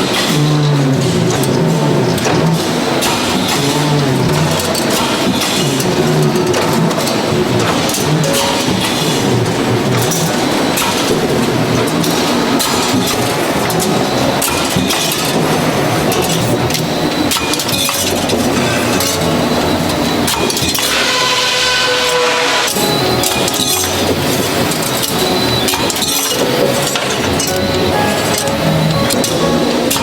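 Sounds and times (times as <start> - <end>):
short ringing tones: 22.7 - 30.0.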